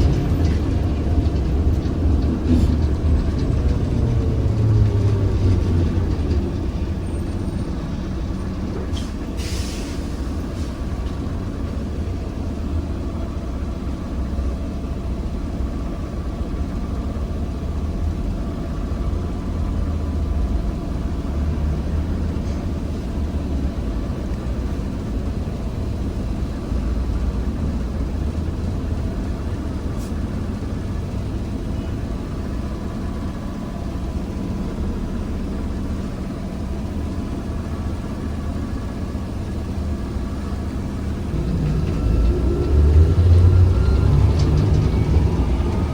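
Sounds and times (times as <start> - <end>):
trolleybus rumble: 0.0 - 45.9.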